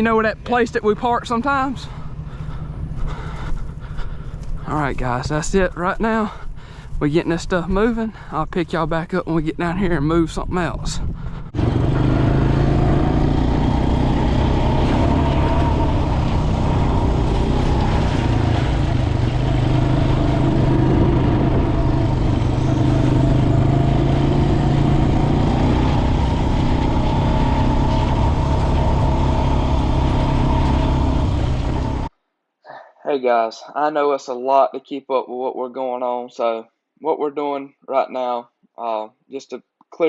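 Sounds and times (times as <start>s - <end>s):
atv engine running: 0.0s - 8.4s, 9.8s - 32.1s.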